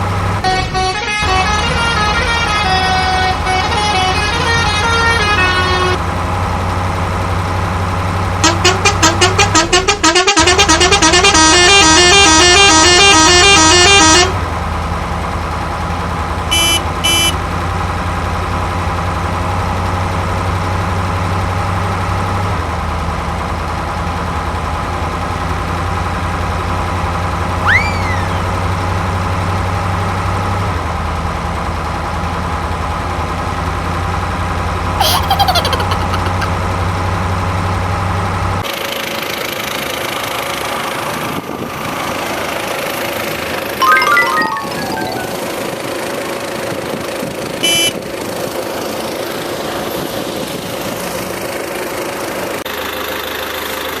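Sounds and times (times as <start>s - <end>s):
toy horn melody: 0.5s - 6.0s, 8.4s - 14.4s, 16.5s - 17.4s, 43.8s - 45.5s.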